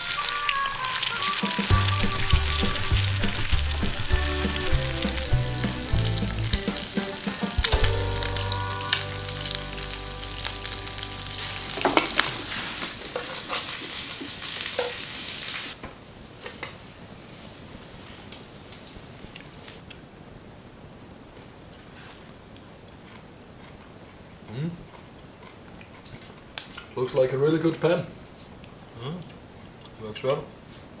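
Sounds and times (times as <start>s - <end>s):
country music: 0.0s - 12.8s
bacon and egg sizzling in pan: 0.0s - 19.0s.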